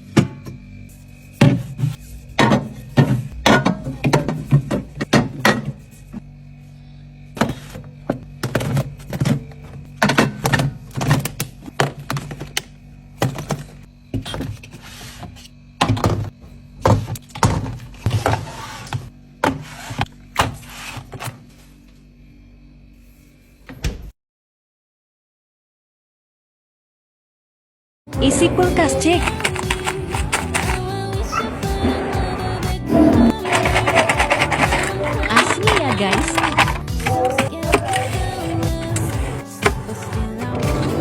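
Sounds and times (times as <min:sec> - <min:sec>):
groceries set down in fridge: 0:29.1 - 0:30.9, 0:33.3 - 0:38.2
packaging rustle: 0:29.2 - 0:30.9, 0:33.4 - 0:38.1.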